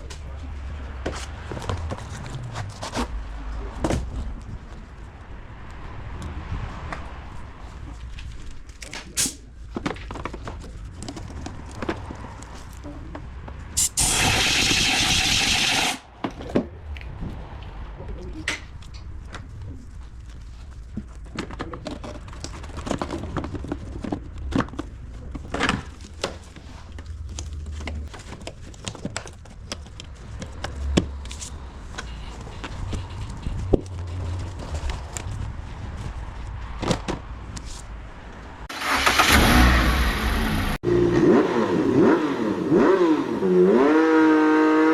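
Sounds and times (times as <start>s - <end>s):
engine revving: 13.8s - 16.0s, 38.7s - 44.9s
car engine running: 14.0s - 16.0s.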